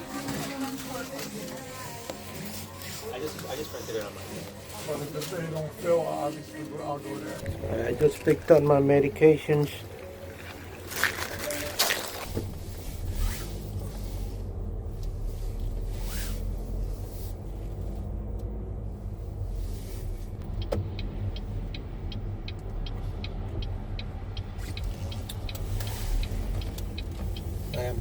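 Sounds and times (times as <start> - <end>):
car engine rumble: 0.0 - 28.0
road noise: 0.0 - 28.0
turn signal ticking: 7.4 - 28.0.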